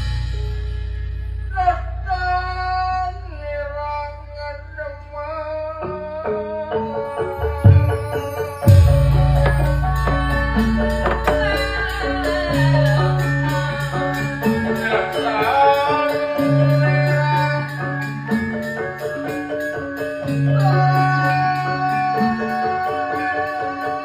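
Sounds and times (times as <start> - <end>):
struck metallophone notes: 5.3 - 24.0
gliding melodic line: 5.8 - 24.0.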